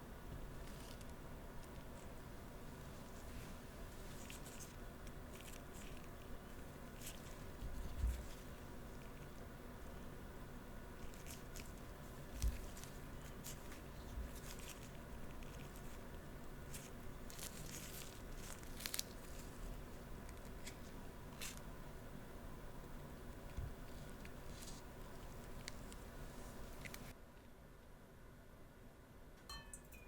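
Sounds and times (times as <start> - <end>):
candied fruit crunching: 3.8 - 21.8.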